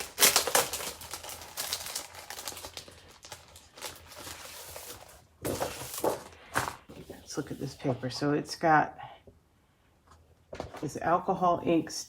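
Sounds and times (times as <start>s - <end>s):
paper and packaging rustling: 0.0s - 8.2s.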